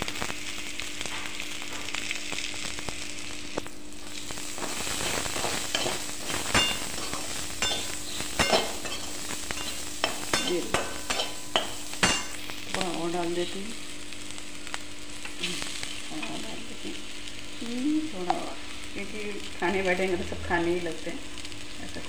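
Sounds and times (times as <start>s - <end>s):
vegetables sizzling in pan: 0.0s - 22.0s.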